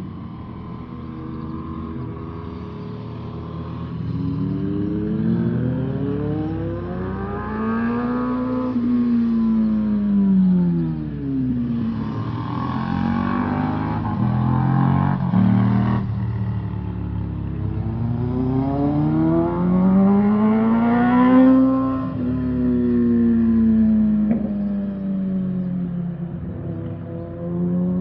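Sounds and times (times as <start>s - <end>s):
motorcycle engine accelerating: 0.1s - 10.9s, 11.6s - 28.0s.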